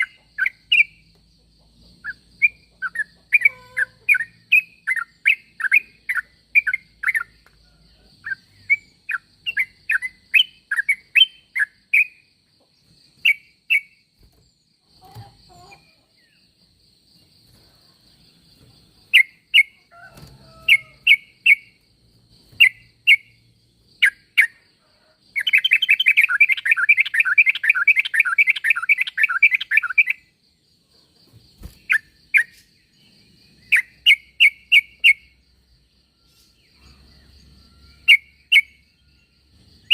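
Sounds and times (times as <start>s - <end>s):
bird chirping and chattering: 0.0s - 7.6s, 8.2s - 12.2s, 22.4s - 24.6s, 25.3s - 30.3s, 31.0s - 35.4s.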